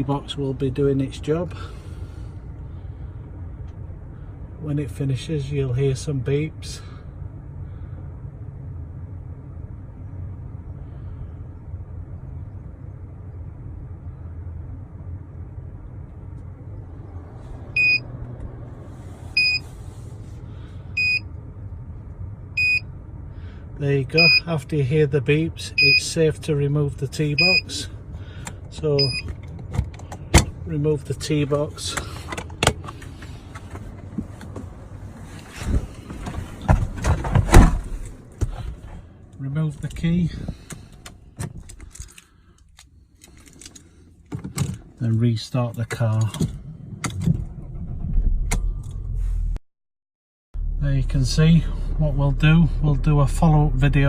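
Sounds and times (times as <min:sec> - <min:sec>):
low rumble: 0:01.5 - 0:29.6, 0:46.2 - 0:49.6, 0:50.6 - 0:54.0
faint handling noise: 0:31.9 - 0:45.0.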